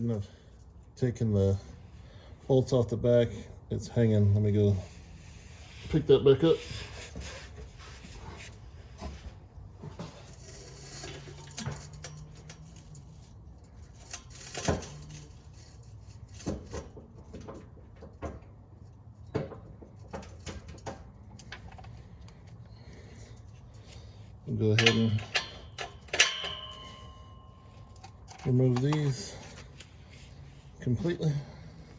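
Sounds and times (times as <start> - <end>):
metal clinks and knocks: 9.9 - 23.0, 24.6 - 30.2.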